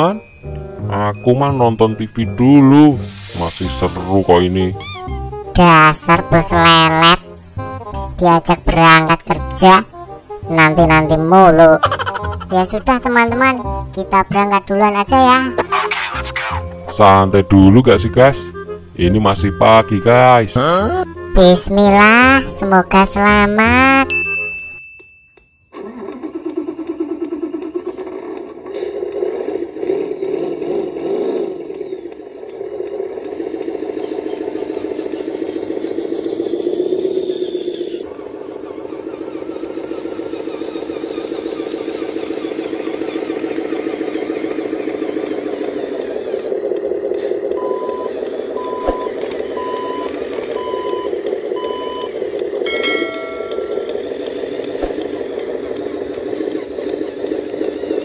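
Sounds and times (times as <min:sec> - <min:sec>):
diesel truck engine sound: 0:00.0 - 0:24.2, 0:25.7 - 0:58.0
brief higher tone: 0:04.7 - 0:05.3
short electronic beeps: 0:04.8 - 0:05.3, 0:24.0 - 0:25.7, 0:47.6 - 0:52.2.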